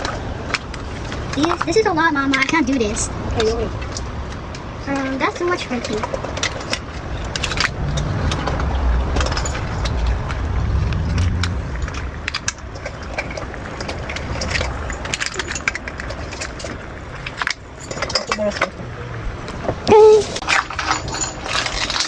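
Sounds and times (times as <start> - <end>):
low rumble: 7.0 - 14.8.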